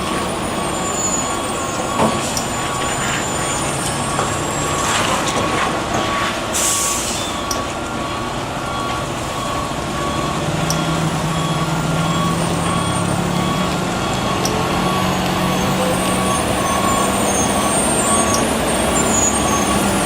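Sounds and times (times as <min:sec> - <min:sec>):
truck engine running: 0:00.0 - 0:20.0
air brakes hissing: 0:00.2 - 0:04.4, 0:06.0 - 0:07.6.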